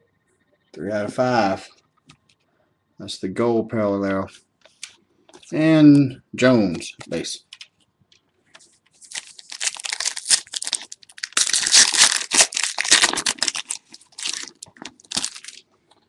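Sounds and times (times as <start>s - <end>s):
plastic packaging crinkling: 9.0s - 15.6s.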